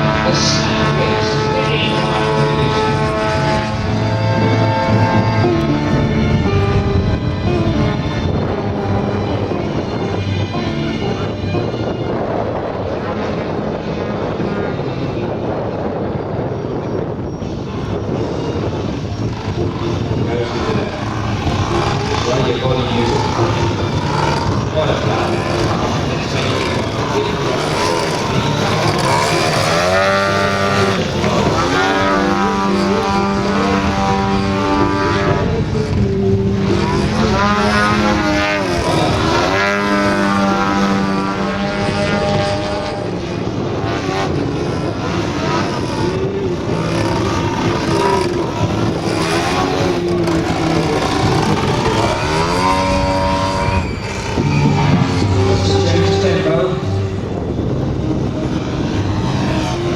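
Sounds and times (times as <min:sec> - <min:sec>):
model airplane engine revving: 0:00.0 - 0:59.9.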